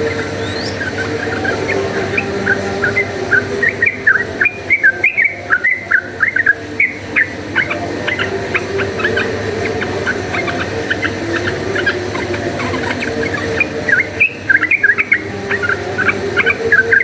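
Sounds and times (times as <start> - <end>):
bird singing whistled notes: 0.0 - 17.0
faint low hum: 0.0 - 17.0.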